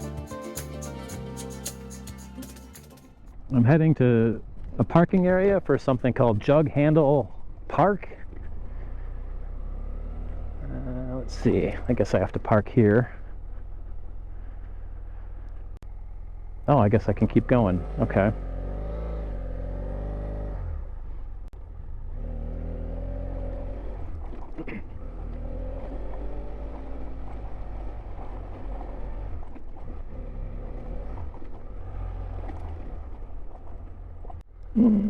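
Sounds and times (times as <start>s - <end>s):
motorcycle engine running: 7.4s - 35.0s.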